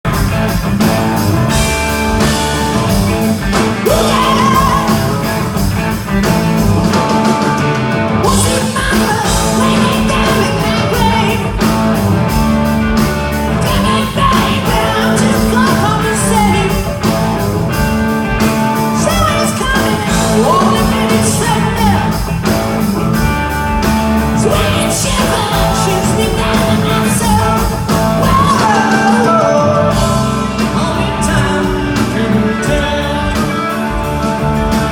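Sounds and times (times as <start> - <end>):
rock band playing live: 0.0 - 34.9
man singing: 3.5 - 5.4, 8.2 - 11.7, 13.6 - 17.0, 18.9 - 22.3, 24.3 - 34.9.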